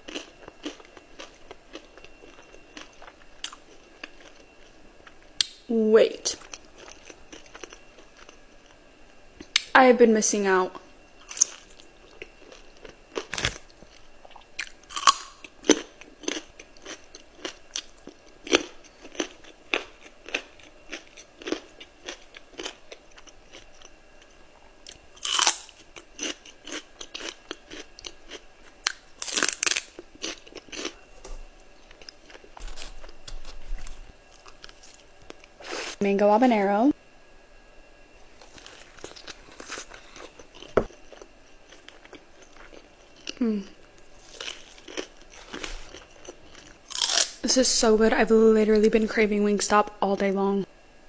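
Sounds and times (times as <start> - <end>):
person chewing crispy chicken: 0.0 - 5.2, 6.4 - 8.8, 11.3 - 31.0, 31.9 - 36.0, 38.4 - 47.4.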